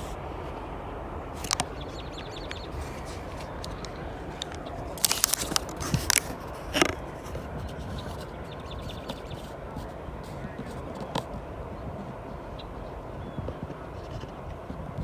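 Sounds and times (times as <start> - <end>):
camera clicks and scrapes: 1.4 - 1.7, 2.5 - 8.4.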